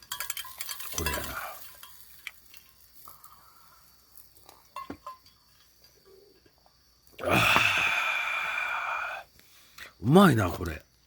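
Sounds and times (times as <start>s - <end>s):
long breathy sigh: 7.2s - 9.4s.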